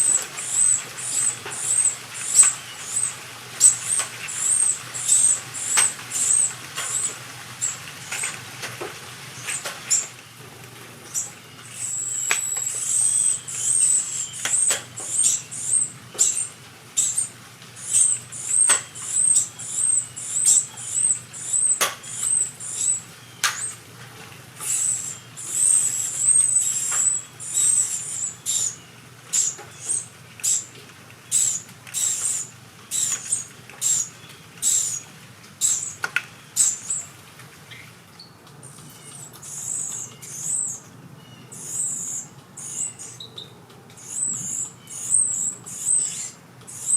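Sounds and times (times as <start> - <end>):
nestlings peeping: 0.0 - 23.9, 24.6 - 46.9.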